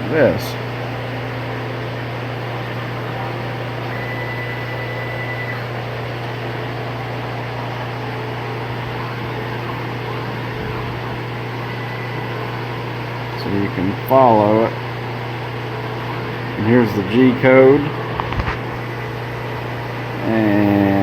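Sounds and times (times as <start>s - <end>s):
motor hum: 0.0s - 21.0s
brief high whine: 2.1s - 12.6s.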